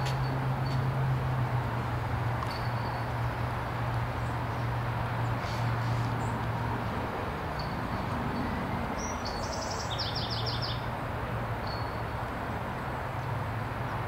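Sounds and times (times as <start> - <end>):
songbird trilling: 9.0 - 10.9.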